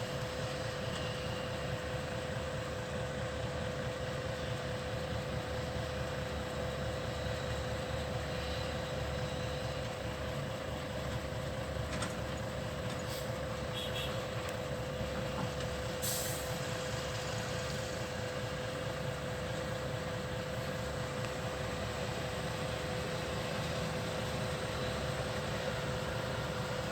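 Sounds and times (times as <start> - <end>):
diesel engine running: 0.0 - 26.9
air hiss: 16.0 - 16.6.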